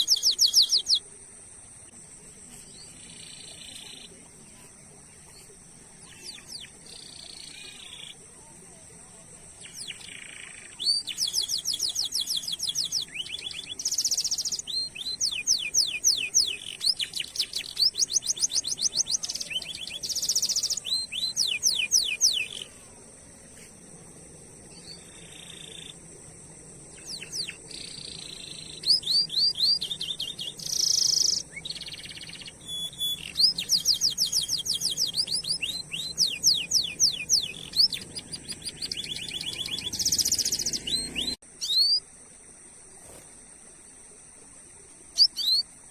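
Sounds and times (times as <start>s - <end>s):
canary singing: 0.0s - 1.0s, 6.0s - 8.2s, 9.6s - 22.7s, 26.9s - 42.0s.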